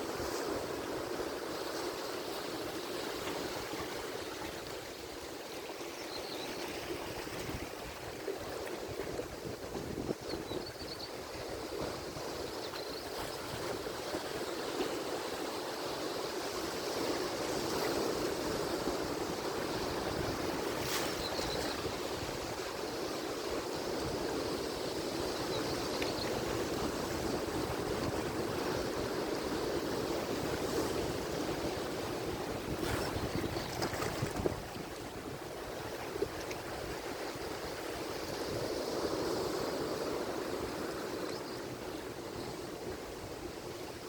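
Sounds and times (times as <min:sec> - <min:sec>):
ocean surf washing: 0:11.1 - 0:44.0.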